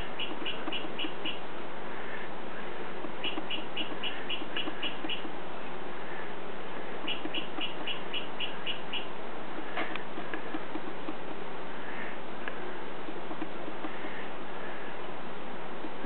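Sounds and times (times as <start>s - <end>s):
bird chirping: 0.0s - 1.4s, 3.2s - 5.3s, 7.0s - 9.1s.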